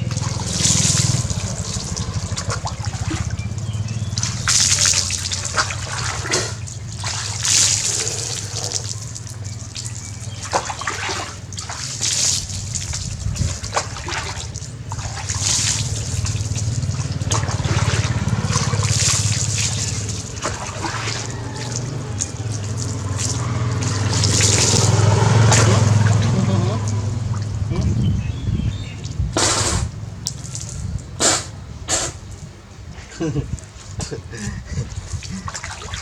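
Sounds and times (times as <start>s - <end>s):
bath water pouring and splashing: 0.0s - 31.6s, 33.5s - 36.0s.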